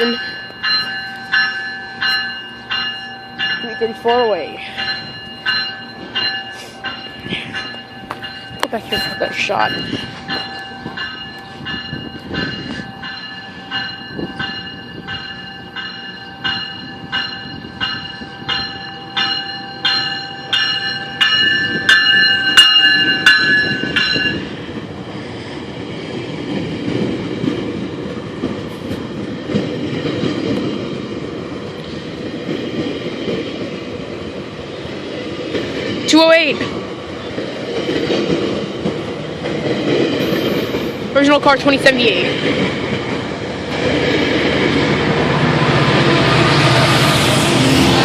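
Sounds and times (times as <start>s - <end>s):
train bell ringing: 0.0s - 24.7s, 40.2s - 42.4s
train rumbling on rails: 0.0s - 48.0s.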